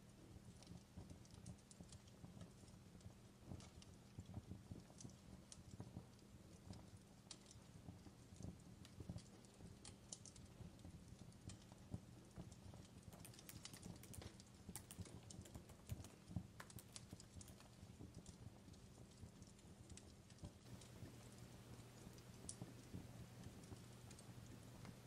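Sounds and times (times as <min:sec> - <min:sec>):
fireplace crackling: 0:00.3 - 0:25.0
faint low hum: 0:11.5 - 0:25.0.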